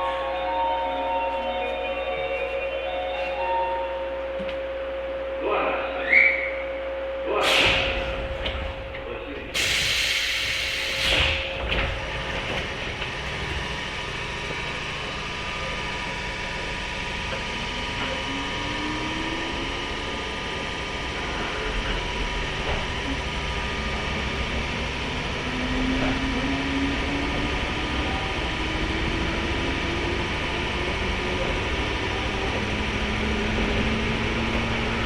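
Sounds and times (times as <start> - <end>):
train wheels rumbling on rail: 7.4 - 35.0.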